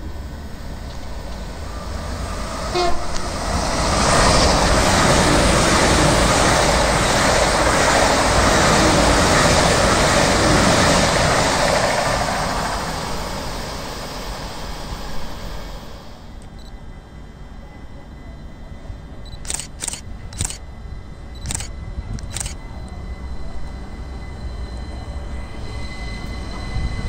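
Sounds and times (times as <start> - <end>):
train passing rumble: 0.0 - 27.0
train horn toot: 2.7 - 3.2.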